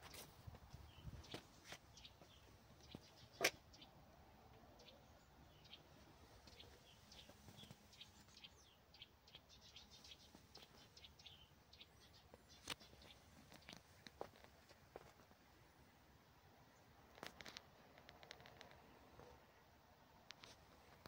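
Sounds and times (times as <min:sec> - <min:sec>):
faint bird chirps: 0:04.7 - 0:13.8.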